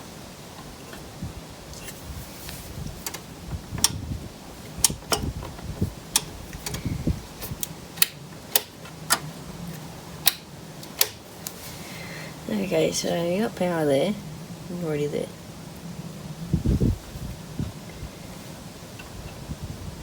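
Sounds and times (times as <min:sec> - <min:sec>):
low handling bumps: 0:00.6 - 0:09.9
clicks and taps of hands on wiring: 0:07.4 - 0:09.2.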